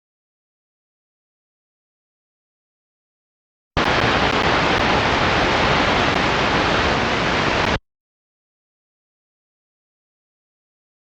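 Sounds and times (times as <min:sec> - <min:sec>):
radio static hiss: 0:03.8 - 0:07.8.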